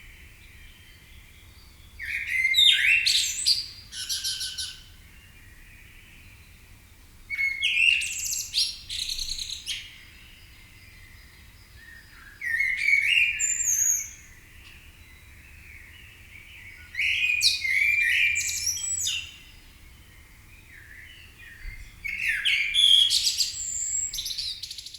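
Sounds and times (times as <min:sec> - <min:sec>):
bird singing chirping phrases: 0:07.4 - 0:24.9.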